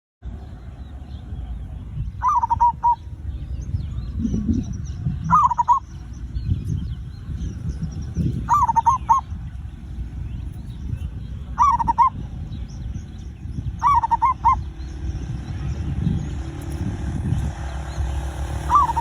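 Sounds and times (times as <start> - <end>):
steady low rumble: 0.2 - 19.0
dove cooing: 2.2 - 3.0, 4.1 - 5.9, 8.4 - 9.3, 11.5 - 12.2, 13.7 - 14.9, 18.7 - 19.0.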